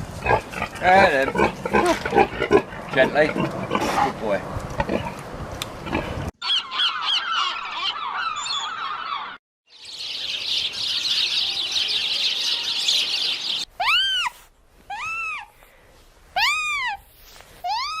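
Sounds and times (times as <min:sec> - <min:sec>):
birds chirping: 0:05.8 - 0:13.7
bird call rising and falling: 0:06.4 - 0:14.3.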